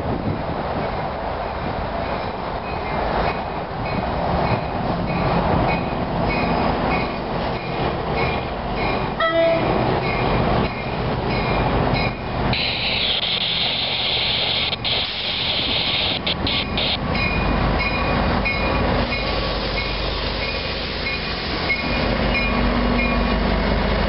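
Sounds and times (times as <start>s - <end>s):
diesel engine rumbling: 0.0s - 24.0s
train bell ringing: 3.9s - 12.3s, 17.1s - 23.4s
train horn blast: 9.2s - 9.8s
loud high hiss: 12.5s - 17.0s.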